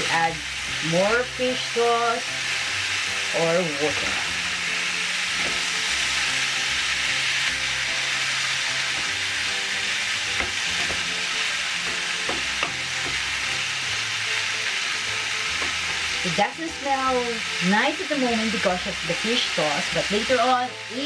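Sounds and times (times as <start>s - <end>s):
food sizzling in a frying pan: 0.0s - 21.0s
spatula knocking against pan: 10.3s - 11.2s, 11.8s - 13.3s.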